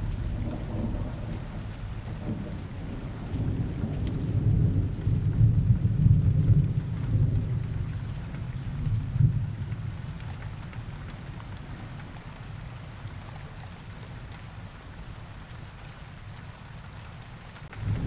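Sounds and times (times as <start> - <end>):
rolling thunder: 0.0 - 7.8, 17.7 - 18.0
steady rain: 0.0 - 18.0.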